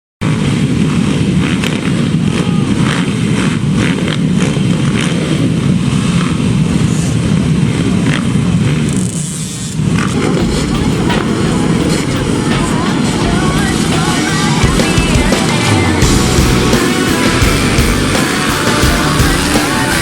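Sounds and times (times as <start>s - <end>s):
dirt bikes running: 0.2s - 20.0s.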